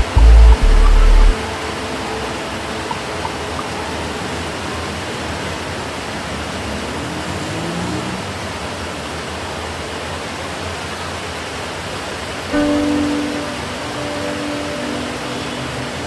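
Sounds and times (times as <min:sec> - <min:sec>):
faint rising tone: 0:00.0 - 0:03.0
steady rain falling: 0:00.0 - 0:16.0.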